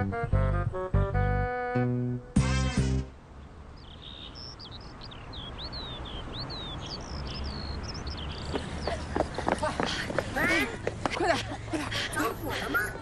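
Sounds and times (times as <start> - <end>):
outdoor background noise: 0.0 - 13.0
small birds chirping: 3.3 - 10.8.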